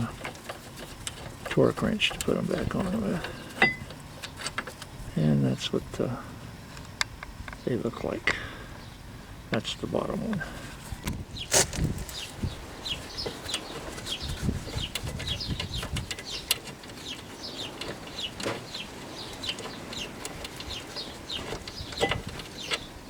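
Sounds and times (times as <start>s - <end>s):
sharp clicks and knocks: 0.0s - 4.9s, 13.2s - 22.9s
birds chirping: 0.0s - 23.0s.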